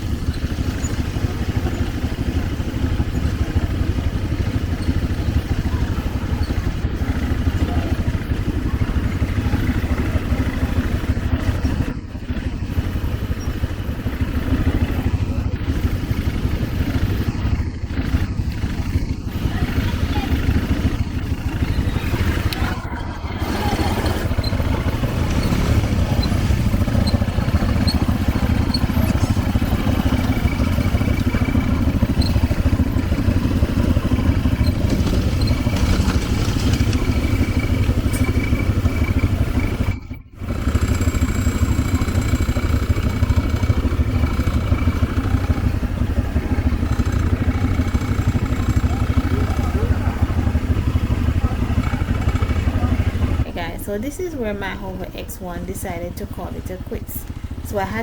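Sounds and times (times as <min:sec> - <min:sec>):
quad engine running: 0:00.0 - 0:58.0
rattling: 0:18.0 - 0:39.9.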